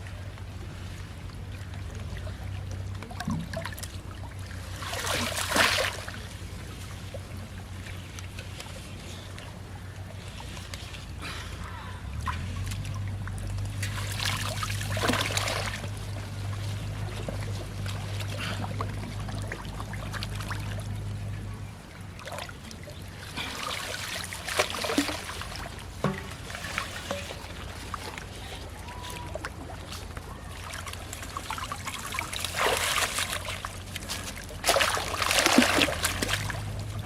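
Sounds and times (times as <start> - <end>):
low steady hum: 0.0 - 37.0
shallow water splashing: 0.1 - 37.0
small knocks: 26.0 - 28.1.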